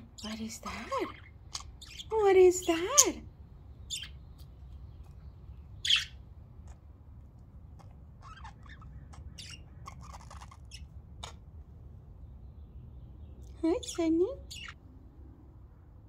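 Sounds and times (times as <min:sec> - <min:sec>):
budgerigars chirping and squawking: 0:00.0 - 0:06.8, 0:07.8 - 0:11.5, 0:13.4 - 0:14.8
low steady background rumble: 0:00.0 - 0:16.0.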